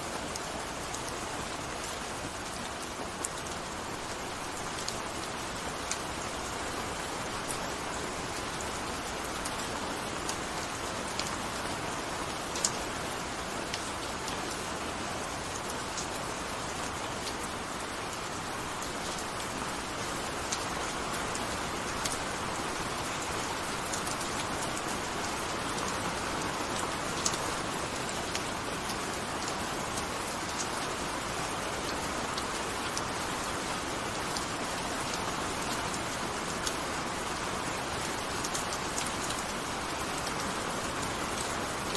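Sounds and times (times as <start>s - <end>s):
gentle steady rain: 0.0s - 41.9s
raindrops ticking on a surface: 0.0s - 41.9s.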